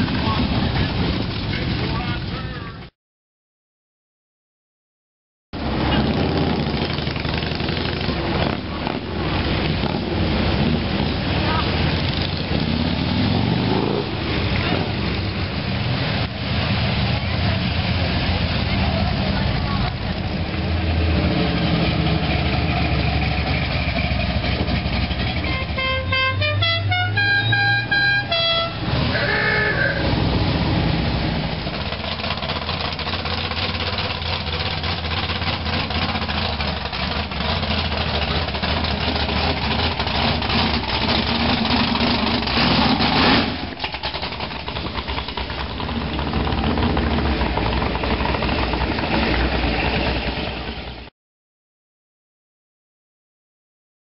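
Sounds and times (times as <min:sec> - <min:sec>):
car engines driving past: 0:05.6 - 0:51.1
musical car horn tune: 0:25.4 - 0:30.0.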